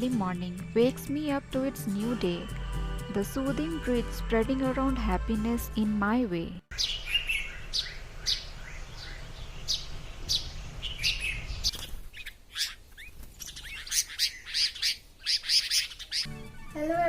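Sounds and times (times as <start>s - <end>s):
small birds chirping: 6.7s - 17.0s.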